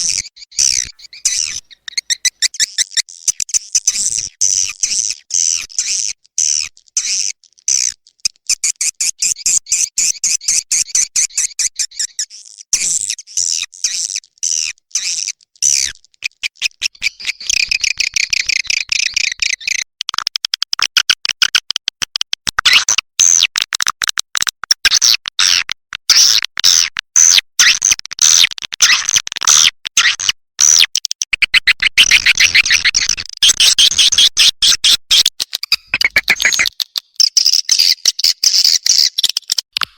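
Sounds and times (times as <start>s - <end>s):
high bird chirps and twitters: 0.0s - 19.9s, 31.5s - 39.7s.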